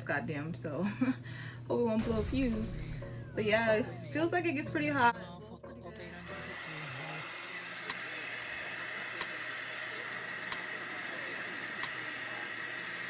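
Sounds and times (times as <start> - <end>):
blow dryer running: 1.3 - 5.0, 6.0 - 13.0.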